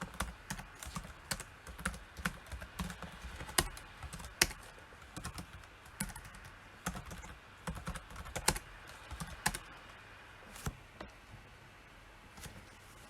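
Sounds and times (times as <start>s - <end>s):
computer keyboard typing: 0.0s - 9.7s.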